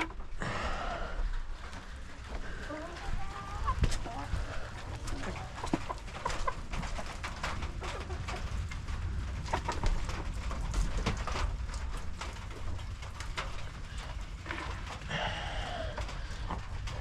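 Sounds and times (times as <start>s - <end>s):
hens clucking: 1.2s - 11.3s.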